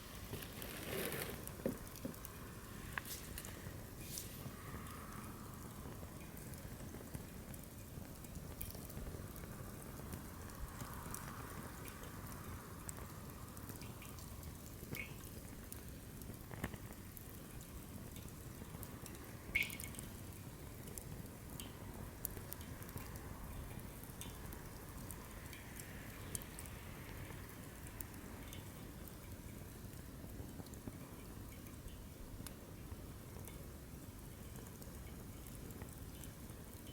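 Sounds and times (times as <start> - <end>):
wood crackling and popping: 0.0 - 3.8
flame rushing: 0.0 - 4.6.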